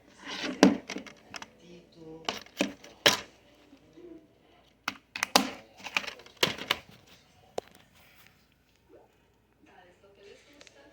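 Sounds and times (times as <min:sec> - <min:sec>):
plastic cases clicking: 0:04.8 - 0:06.9.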